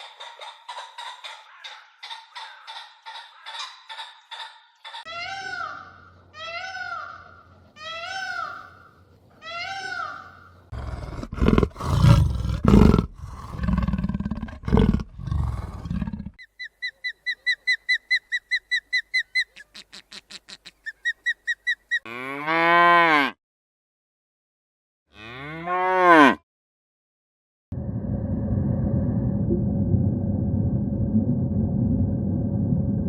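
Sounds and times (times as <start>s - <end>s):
loud animal roars: 10.7s - 16.4s
cow mooing: 22.1s - 23.4s, 25.1s - 26.4s.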